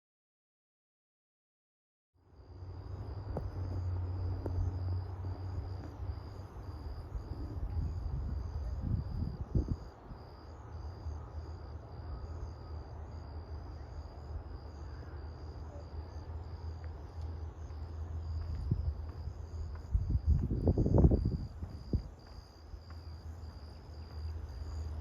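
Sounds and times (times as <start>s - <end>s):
insects chirping: 2.3s - 25.0s
low rumble: 17.0s - 23.6s.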